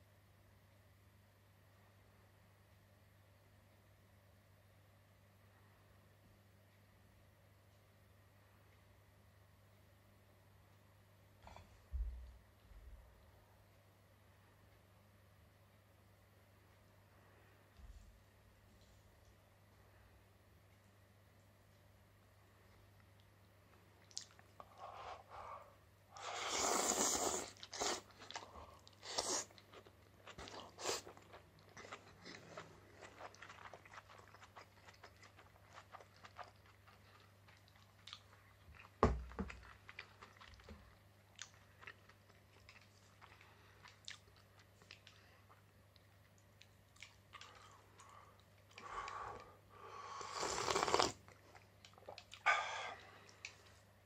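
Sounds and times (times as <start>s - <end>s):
person chewing and crunching: 26.2s - 49.4s, 50.3s - 53.7s.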